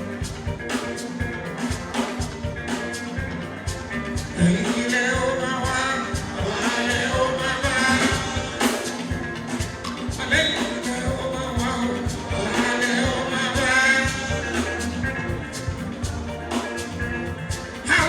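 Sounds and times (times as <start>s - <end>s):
drums and percussion: 0.0s - 18.0s
person singing: 4.4s - 15.2s.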